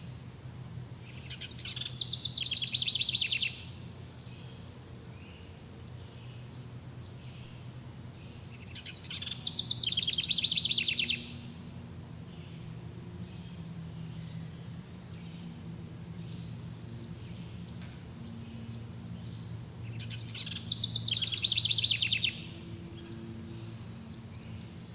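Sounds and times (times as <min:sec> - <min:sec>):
faint bird chirps: 0:01.0 - 0:11.5, 0:16.2 - 0:24.9
songbird trilled phrases: 0:01.0 - 0:24.9
steady low hum: 0:03.1 - 0:24.9.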